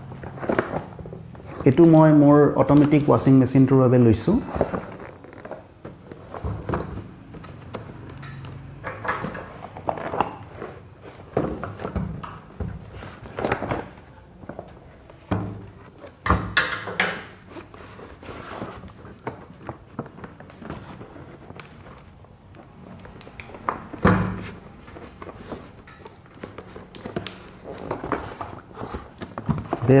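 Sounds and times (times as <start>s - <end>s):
packaging rustling: 0.0s - 3.4s, 4.3s - 8.7s, 9.3s - 16.2s, 17.3s - 30.0s.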